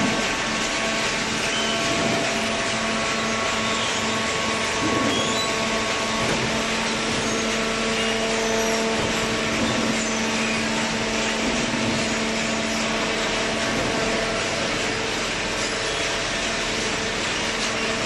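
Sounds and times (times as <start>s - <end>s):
hydraulic baler pump humming: 0.0s - 18.0s.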